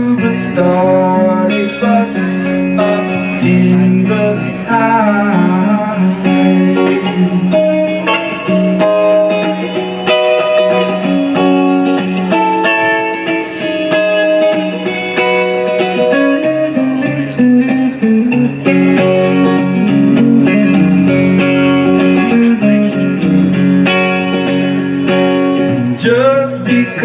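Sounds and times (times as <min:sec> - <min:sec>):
plucked guitar melody: 0:00.0 - 0:27.0.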